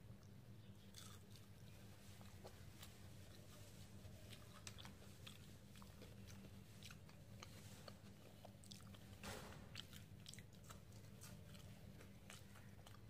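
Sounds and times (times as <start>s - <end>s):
faint chewing: 0.0s - 13.0s
low steady hum: 0.0s - 13.0s.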